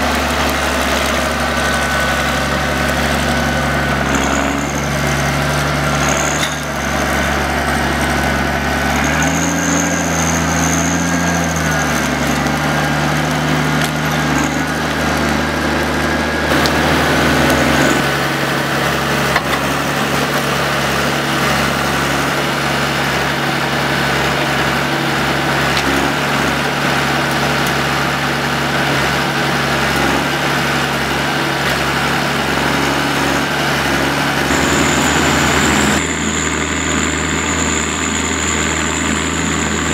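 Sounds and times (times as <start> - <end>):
diesel engine running: 0.0 - 39.9
high whine: 9.4 - 26.6, 32.7 - 39.9.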